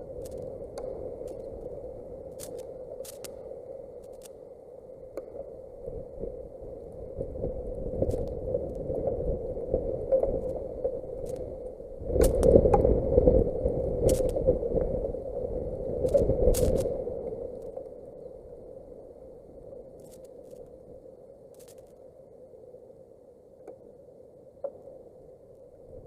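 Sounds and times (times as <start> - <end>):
sharp ticks: 2.4 - 3.4
wind buffeting the microphone: 5.8 - 17.7.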